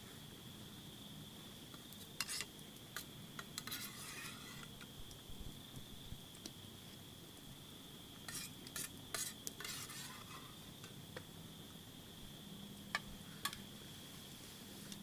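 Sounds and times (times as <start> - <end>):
utensil scraping a food container: 3.6 - 4.7, 8.3 - 10.6.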